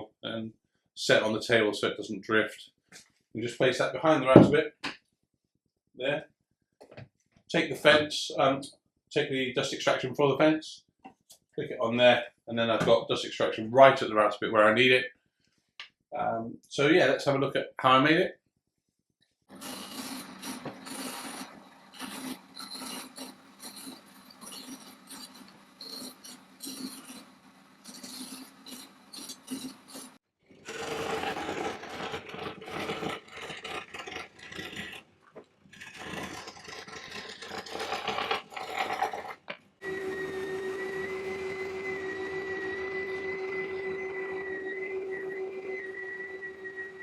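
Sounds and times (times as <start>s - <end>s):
power tool motor: 19.5s - 35.0s, 35.8s - 47.0s
scraping and rubbing wood: 19.5s - 47.0s.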